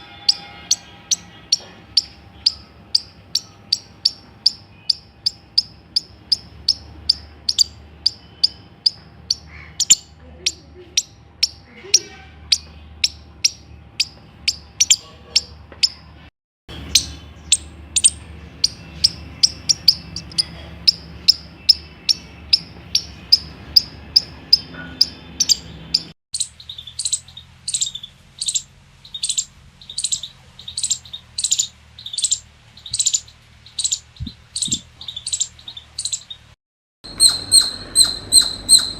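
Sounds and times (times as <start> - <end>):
squirrel chirping alarm calls: 0.0 - 16.1, 16.7 - 38.9.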